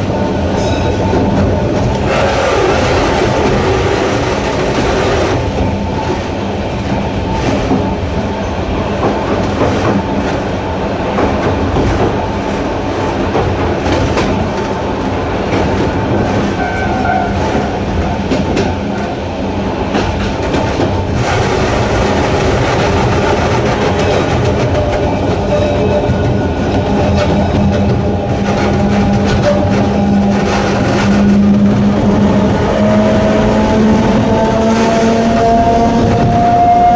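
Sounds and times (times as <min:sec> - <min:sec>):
electric train running: 0:00.0 - 0:36.9
traction motor hum: 0:01.5 - 0:08.5
high wheel squeal: 0:16.6 - 0:17.6
wheels clicking over rail joints: 0:19.8 - 0:36.9.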